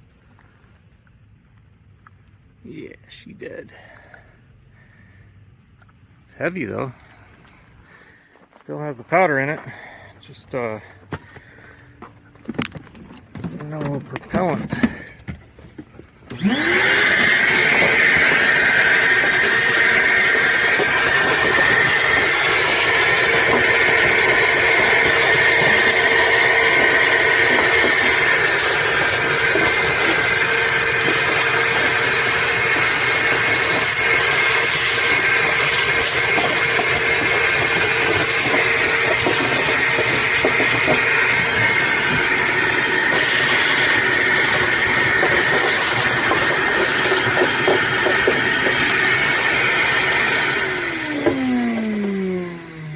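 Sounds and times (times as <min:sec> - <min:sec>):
shop vacuum motor whining: 0:13.4 - 0:52.9.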